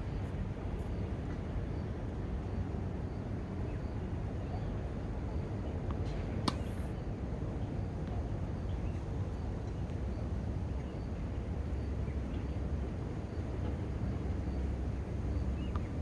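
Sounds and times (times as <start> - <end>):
faint tap: 5.9 - 6.7.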